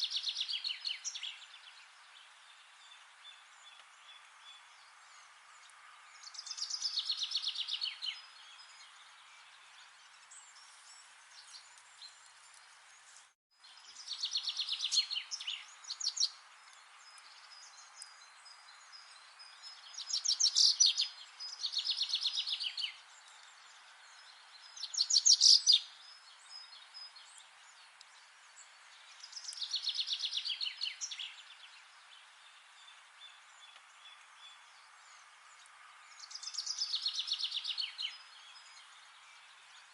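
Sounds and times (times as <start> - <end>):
faint forest background hiss: 0.0 - 39.9
songbird trilling: 24.8 - 25.9.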